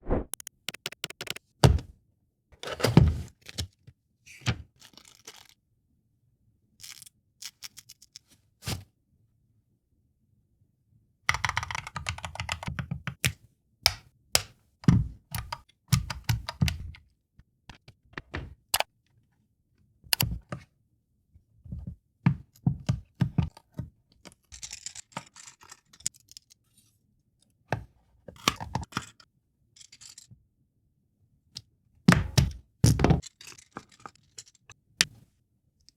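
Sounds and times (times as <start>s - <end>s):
rapid clicking: 0.3s - 1.4s.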